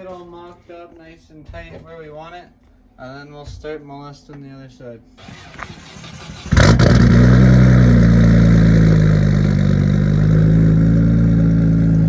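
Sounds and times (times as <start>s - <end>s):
car engine idling: 5.2s - 12.0s.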